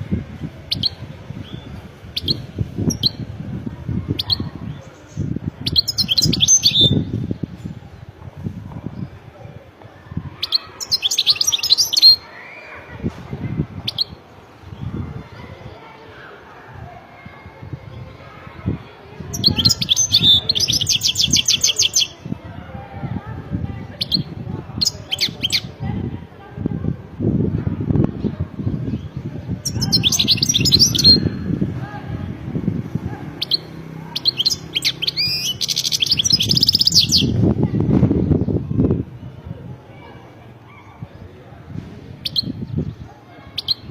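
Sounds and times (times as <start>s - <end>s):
goldfinch twittering song: 5.6s - 7.1s, 33.4s - 37.4s.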